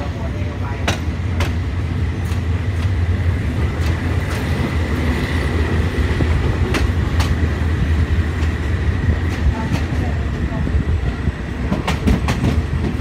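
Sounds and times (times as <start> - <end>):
train rumbling: 0.0 - 13.0
wheels clicking over rail joints: 2.2 - 10.4.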